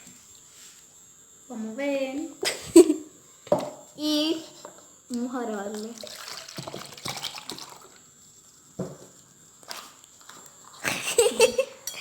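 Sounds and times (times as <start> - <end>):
small drips: 5.1 - 8.0
liquid pouring into a cup: 5.7 - 8.1.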